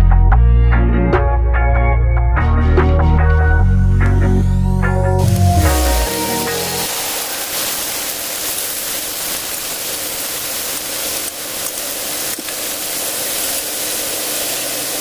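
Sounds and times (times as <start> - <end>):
chicken sizzling in oil: 5.2 - 15.0.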